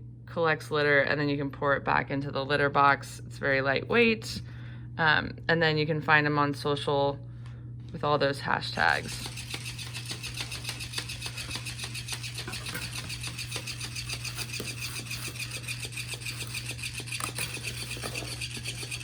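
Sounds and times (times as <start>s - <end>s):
constant low hum: 0.0s - 19.0s
fast rhythmic rasping and rubbing: 9.1s - 19.0s.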